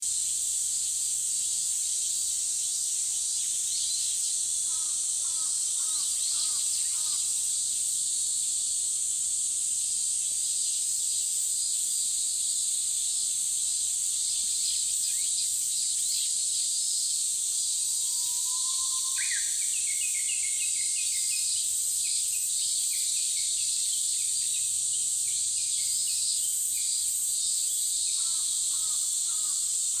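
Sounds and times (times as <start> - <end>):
forest birds singing: 3.4 - 7.3, 14.2 - 16.8, 17.8 - 27.2
high-pitched insect drone: 14.3 - 30.0.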